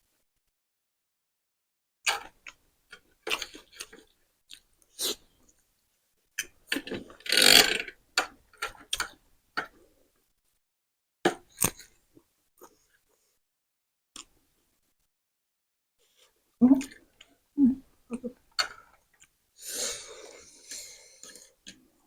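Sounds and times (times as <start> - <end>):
loud noodle slurp: 5.0 - 5.2, 7.2 - 7.9.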